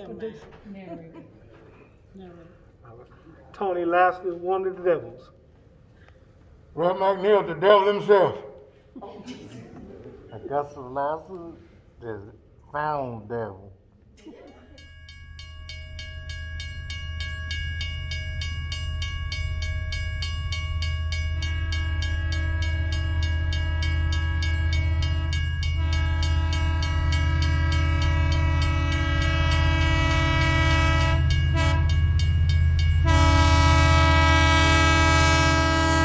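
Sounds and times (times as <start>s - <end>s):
train horn blasts: 21.2s - 36.0s.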